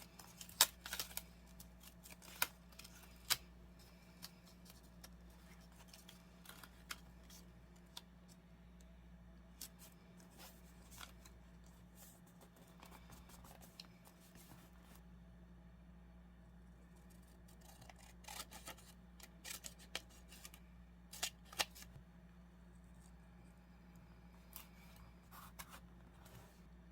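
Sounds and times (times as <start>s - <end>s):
scissors snipping paper: 0.0s - 3.5s, 17.0s - 21.9s
low steady hum: 0.0s - 26.9s.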